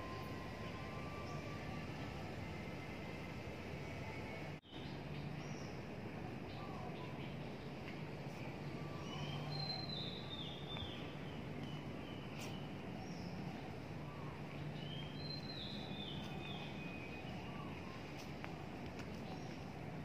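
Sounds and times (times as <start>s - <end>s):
faint low background hum: 0.0s - 20.0s
songbird whistled notes: 8.8s - 13.2s.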